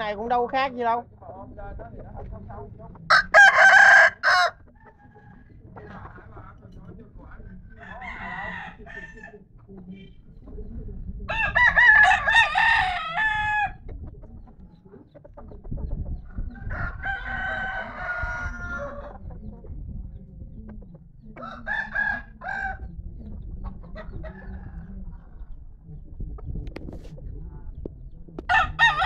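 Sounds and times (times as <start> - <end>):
rooster crowing: 3.1 - 4.6, 7.8 - 9.3, 11.3 - 13.8, 16.7 - 19.0, 21.4 - 22.8, 28.5 - 29.0.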